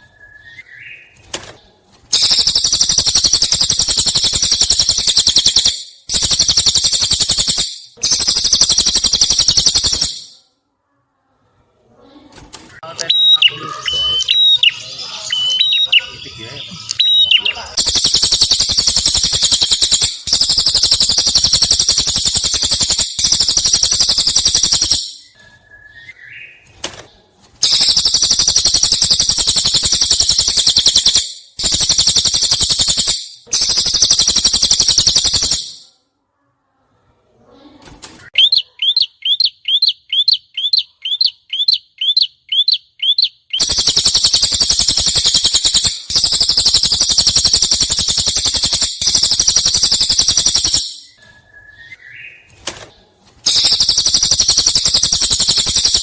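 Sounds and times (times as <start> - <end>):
bird repeated clear notes: 12.8 - 26.7
bird singing buzzy trills: 13.1 - 26.6, 38.4 - 52.4.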